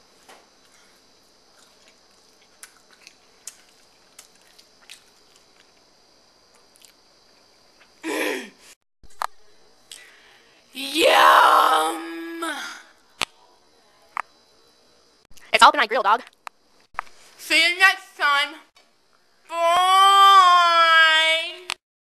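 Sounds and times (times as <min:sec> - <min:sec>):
person chewing food: 0:00.6 - 0:05.9, 0:06.5 - 0:08.0
person moaning: 0:10.8 - 0:12.9.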